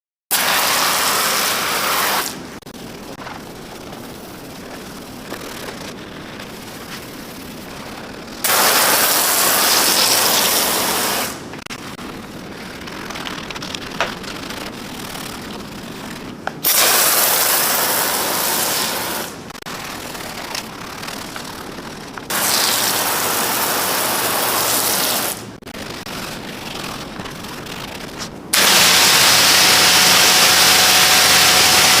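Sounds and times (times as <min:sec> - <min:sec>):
spray hissing: 0:00.4 - 0:11.4, 0:14.1 - 0:25.4, 0:28.2 - 0:32.0
steady rushing noise: 0:02.3 - 0:22.4.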